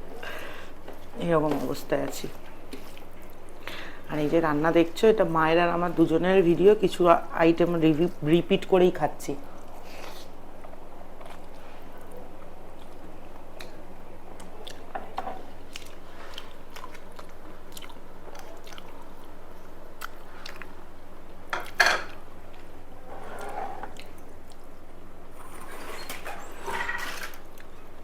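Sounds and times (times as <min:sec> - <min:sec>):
person chewing food: 0:02.4 - 0:03.9, 0:09.5 - 0:22.8, 0:23.8 - 0:24.8
food crunching: 0:09.5 - 0:20.8.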